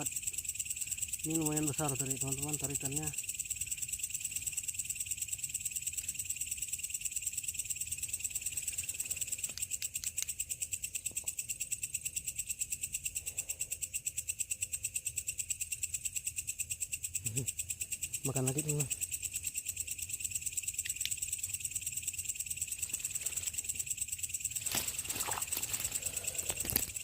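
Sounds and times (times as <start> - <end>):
night insects trilling: 0.0 - 27.0
faint clicks: 9.4 - 10.4.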